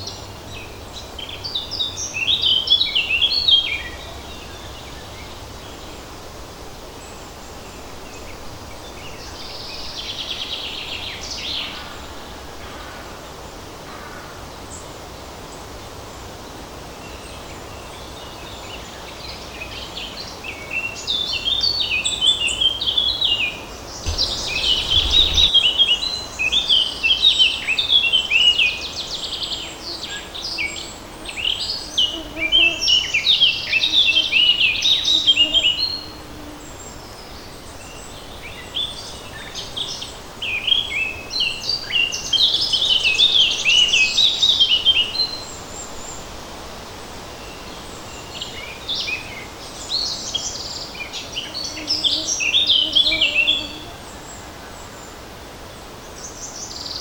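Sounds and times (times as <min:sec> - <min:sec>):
buzzy bird trill: 0:24.1 - 0:25.6
songbirds singing: 0:24.1 - 0:25.8
light breeze hiss: 0:24.1 - 0:25.9.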